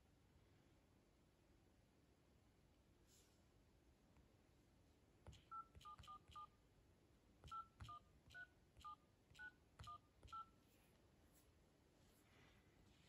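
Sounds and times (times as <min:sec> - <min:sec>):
keypad two-tone beeps: 0:05.3 - 0:06.6, 0:07.4 - 0:10.6.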